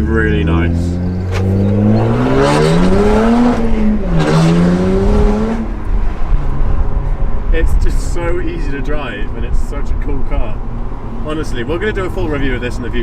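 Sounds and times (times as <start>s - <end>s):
car engine accelerating hard: 0.0s - 6.9s.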